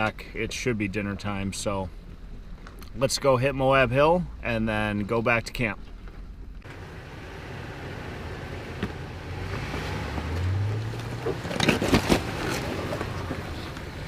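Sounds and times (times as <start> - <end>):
truck engine revving under load: 6.6 - 14.0
sharp knocks and crunches: 8.7 - 13.5.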